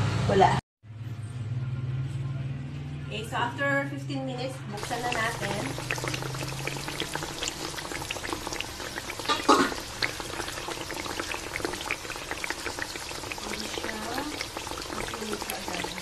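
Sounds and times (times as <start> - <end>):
sauce bubbling and popping: 4.8 - 16.0.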